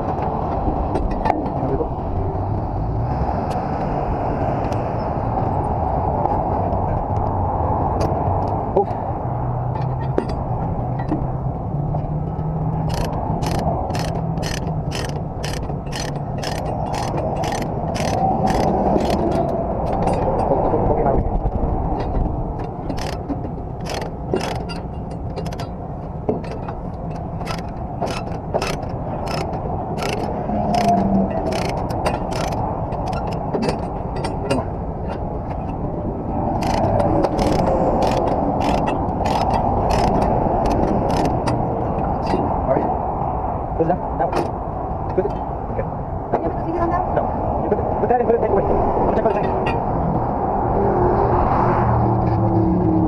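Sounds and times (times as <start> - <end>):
ratchet clicking: 12.8 - 19.4, 22.9 - 23.2, 23.8 - 24.8, 25.4 - 25.6, 27.1 - 33.4, 36.6 - 41.6.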